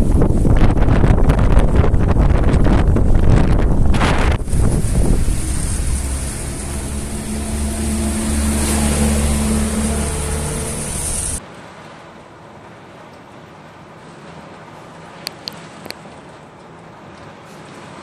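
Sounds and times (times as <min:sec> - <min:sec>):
vehicle engine humming: 0:04.0 - 0:11.4.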